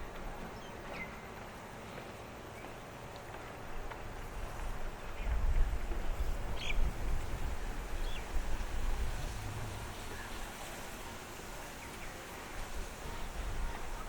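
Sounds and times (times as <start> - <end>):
low uneven rumble: 6.9 - 12.4.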